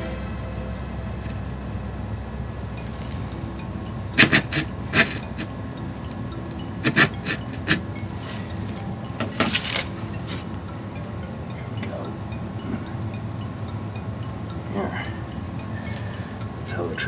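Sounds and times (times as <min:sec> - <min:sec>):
low room hum: 0:00.0 - 0:17.0
scratchy rubbing and rustling: 0:04.2 - 0:05.6, 0:06.8 - 0:10.6.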